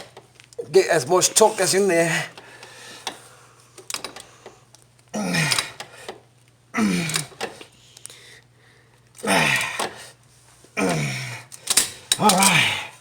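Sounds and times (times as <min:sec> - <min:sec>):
man grunting with effort: 0:05.2 - 0:05.8, 0:06.8 - 0:07.4, 0:09.2 - 0:10.0, 0:10.8 - 0:11.5, 0:12.2 - 0:13.0.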